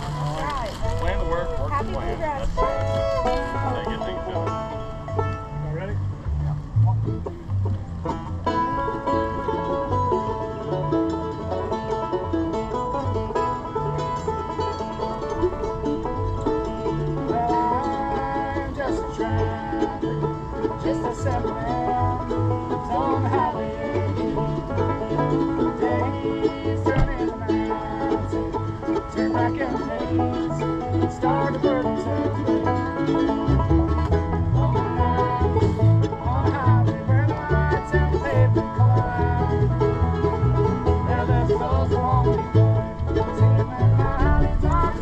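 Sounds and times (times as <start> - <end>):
banjo picking: 0.0 - 45.0
bluegrass band playing: 0.0 - 45.0.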